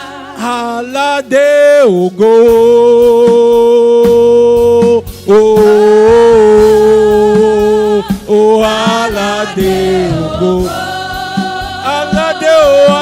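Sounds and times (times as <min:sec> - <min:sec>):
steady drum beat: 0:02.0 - 0:13.0.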